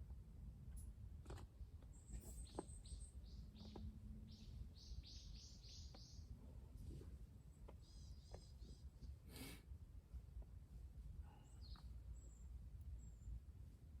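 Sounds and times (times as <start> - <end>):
small bird chirping: 1.9 - 6.3, 7.6 - 9.0, 11.3 - 13.4.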